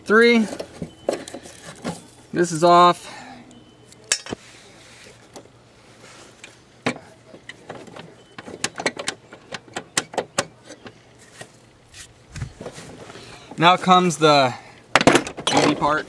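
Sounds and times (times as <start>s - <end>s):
tools and parts clicking: 4.0s - 4.4s, 7.4s - 11.0s.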